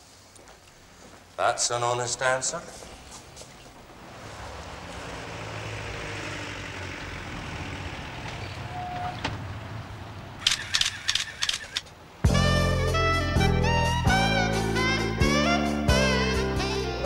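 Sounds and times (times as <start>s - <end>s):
street traffic: 0.0s - 13.4s
car engine running: 4.9s - 8.7s
sharp clicks: 10.4s - 12.0s.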